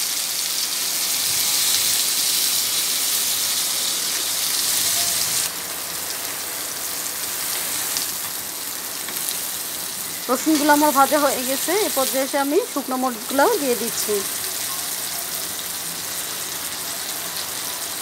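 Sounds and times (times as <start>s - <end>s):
oil sizzling in frying pan: 0.0s - 18.0s.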